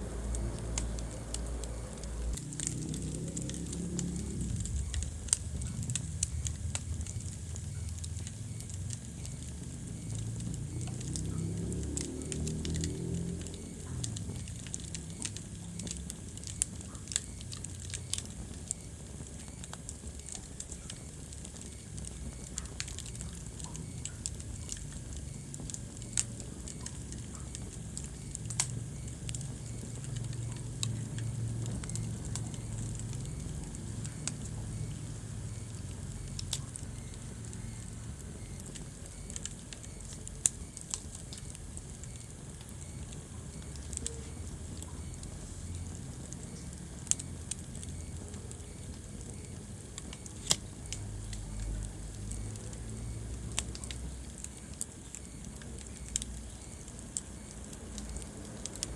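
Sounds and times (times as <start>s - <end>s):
loud fire pops: 0.0s - 58.9s
low rumble of flames: 0.0s - 58.9s
wood fire crackling: 0.0s - 58.9s.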